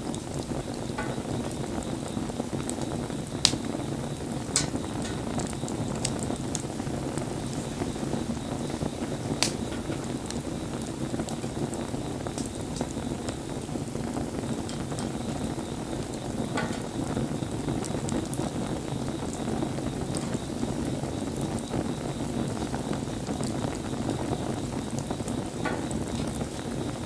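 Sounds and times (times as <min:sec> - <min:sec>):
bonfire flames rushing: 0:00.0 - 0:27.0
fire crackles and pops: 0:00.0 - 0:27.0.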